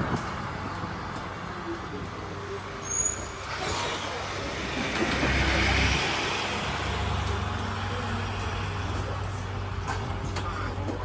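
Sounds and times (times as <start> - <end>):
rushing wheel-and-track noise: 0.0 - 11.0
tram rumbling: 0.0 - 11.0
high-pitched wheel squeal: 2.8 - 4.2.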